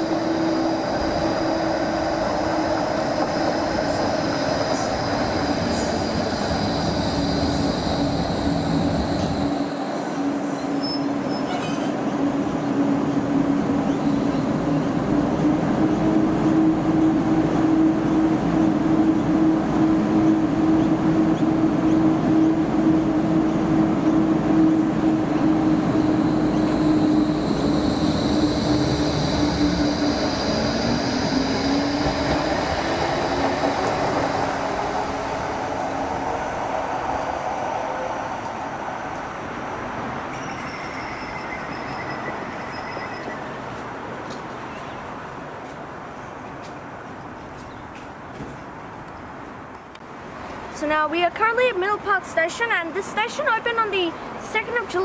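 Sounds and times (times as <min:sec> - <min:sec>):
tram wheel squeals: 0:00.0 - 0:36.2, 0:38.4 - 0:45.1
tram motor whine and rumble: 0:00.0 - 0:46.0.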